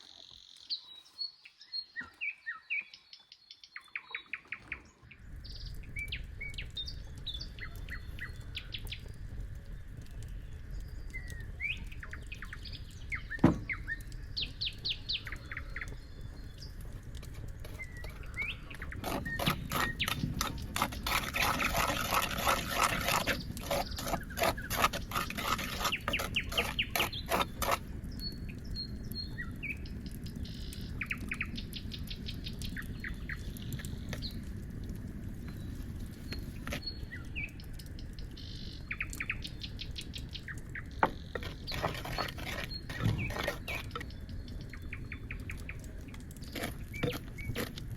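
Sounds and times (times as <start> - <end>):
small birds chirping: 0.0 - 34.6, 35.2 - 47.9
rapid rasping strokes: 17.1 - 27.9, 41.0 - 44.2, 46.3 - 47.9.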